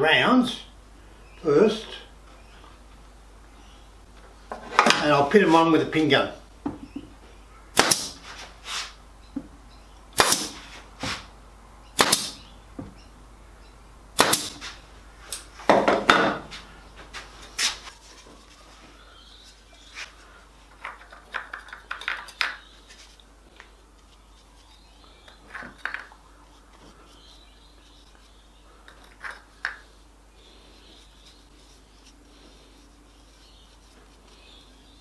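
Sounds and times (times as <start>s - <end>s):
pin gun firing: 7.8s - 8.2s, 10.2s - 10.6s, 12.0s - 12.4s, 14.2s - 14.6s.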